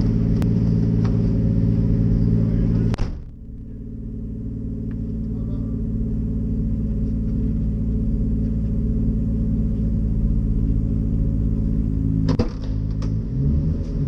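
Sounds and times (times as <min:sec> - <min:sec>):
car engine idling: 0:00.0 - 0:14.0
sharp clunk: 0:03.0 - 0:03.5, 0:12.3 - 0:13.2.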